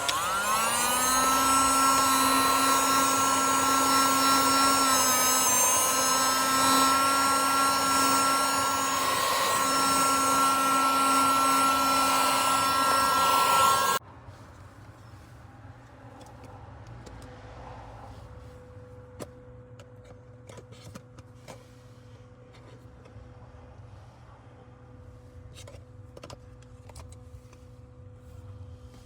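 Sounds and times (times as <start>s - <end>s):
small electric motor whine: 0.0s - 14.0s.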